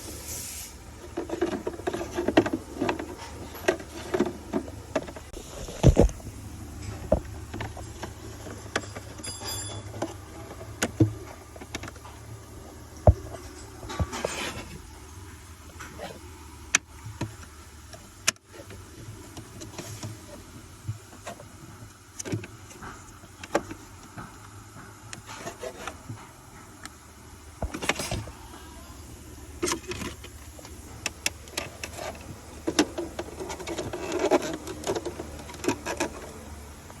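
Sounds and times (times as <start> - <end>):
plastic parts clicking: 29.6 - 36.7.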